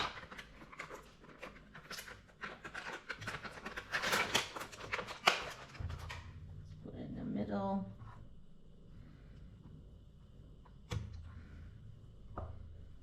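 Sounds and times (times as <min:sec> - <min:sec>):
packaging clicks and rustles: 0:00.0 - 0:06.3.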